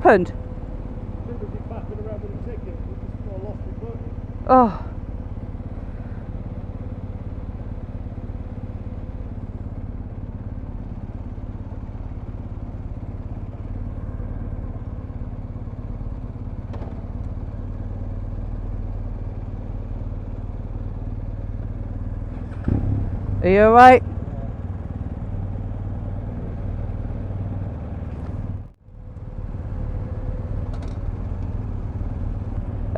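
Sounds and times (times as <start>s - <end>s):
motorcycle engine idling: 0.0s - 32.9s.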